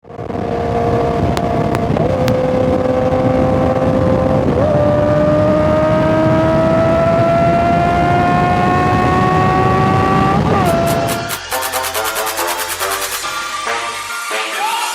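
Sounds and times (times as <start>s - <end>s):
motorcycle engine accelerating: 0.0s - 11.5s.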